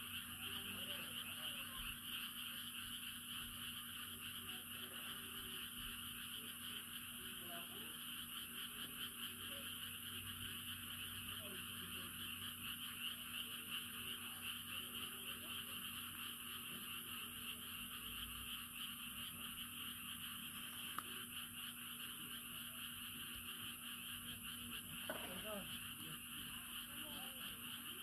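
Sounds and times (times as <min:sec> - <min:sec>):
chorus of frogs calling: 0:00.0 - 0:28.0.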